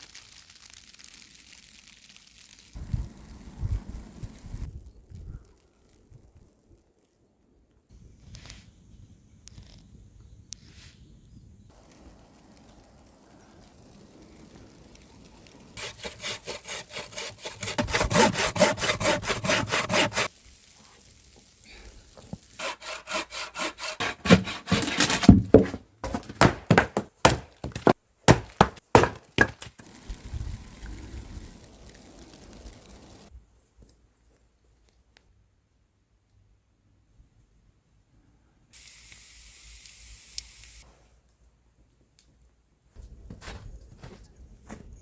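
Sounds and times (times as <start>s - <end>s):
handsaw sawing wood: 15.8s - 20.3s, 22.6s - 28.4s.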